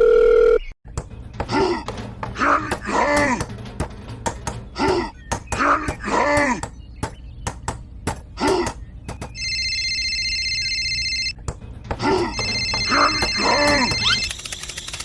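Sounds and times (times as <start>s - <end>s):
electronic ringing tone: 0.0s - 0.7s, 9.3s - 11.4s, 12.3s - 15.0s
sharp clicks: 14.0s - 15.0s.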